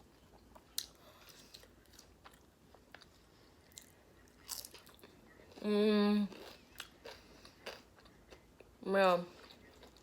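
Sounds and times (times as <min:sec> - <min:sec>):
chewing food: 0:06.3 - 0:08.7, 0:09.3 - 0:10.0.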